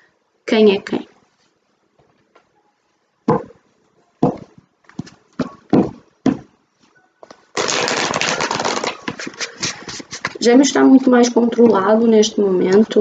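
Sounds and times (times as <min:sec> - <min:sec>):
cards shuffling: 0:07.3 - 0:10.4.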